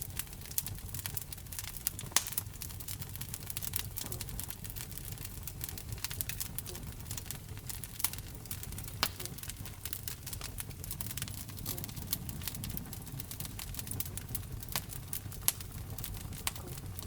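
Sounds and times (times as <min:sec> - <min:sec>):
wood fire crackling in fireplace: 0:00.0 - 0:17.0.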